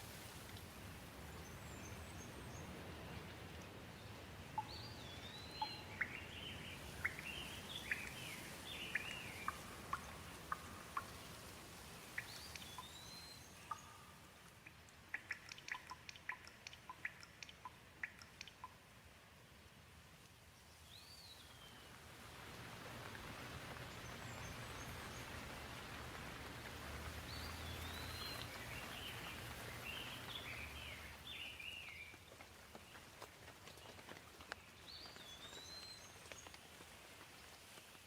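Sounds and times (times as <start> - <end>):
sharp water drips: 0.0 - 19.0, 22.2 - 37.8
gentle rain hissing: 0.0 - 38.0
bird chirping: 4.0 - 11.4, 12.0 - 18.8, 27.2 - 32.2.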